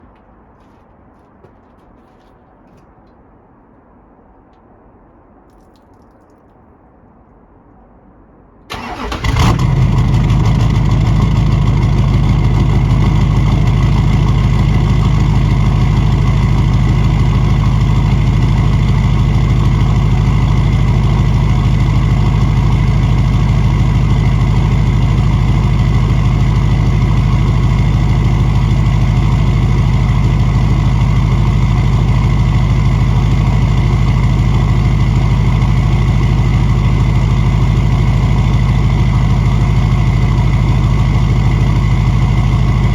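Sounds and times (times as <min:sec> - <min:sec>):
diesel engine starting and idling: 0:08.7 - 0:42.9.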